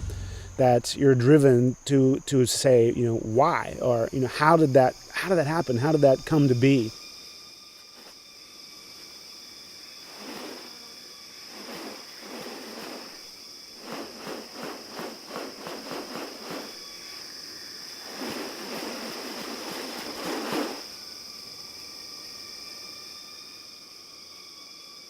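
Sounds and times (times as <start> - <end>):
rough noise: 0.0 - 1.1, 18.0 - 20.9
high-pitched insect drone: 0.0 - 25.0.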